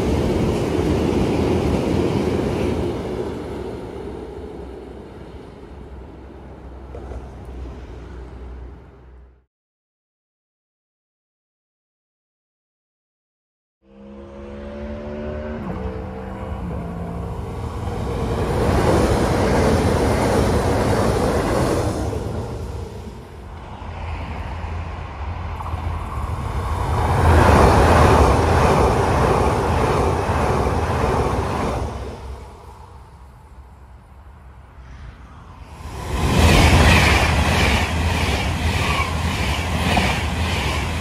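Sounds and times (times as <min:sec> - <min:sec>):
train wheels rushing on rails: 0:00.0 - 0:08.6, 0:16.5 - 0:33.2, 0:34.8 - 0:41.0
high-speed electric train passing: 0:00.0 - 0:09.5, 0:13.9 - 0:41.0.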